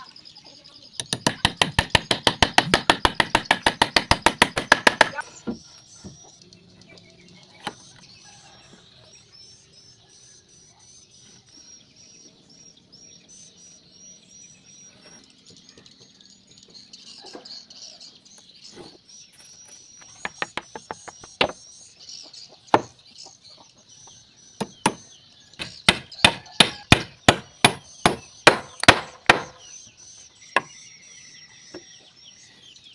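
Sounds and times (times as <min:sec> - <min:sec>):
birds chirping: 0:00.0 - 0:32.9
hammer striking wood: 0:01.0 - 0:05.6, 0:22.7 - 0:23.0, 0:24.6 - 0:29.6.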